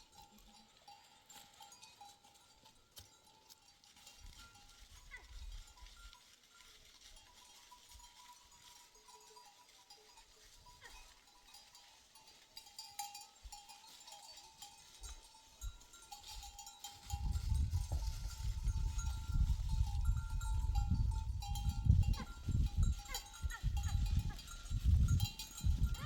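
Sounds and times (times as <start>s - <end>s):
animal bells ringing: 0.0s - 26.0s
sheep and goats bleating: 4.8s - 26.0s.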